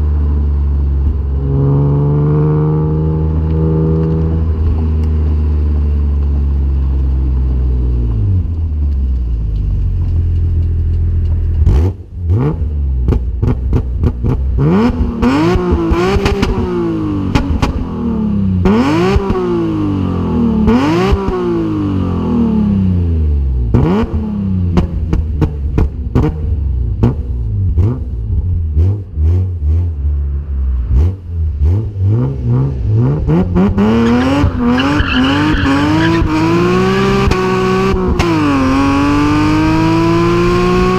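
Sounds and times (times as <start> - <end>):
car engine revving: 0.0 - 7.2, 10.0 - 40.9
exhaust cracks and pops: 3.4 - 12.2.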